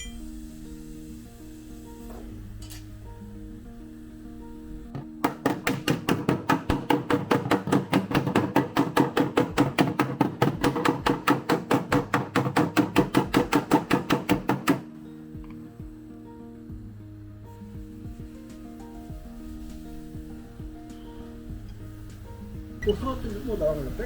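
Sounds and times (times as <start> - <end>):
hammer striking metal panel: 5.0 - 14.8.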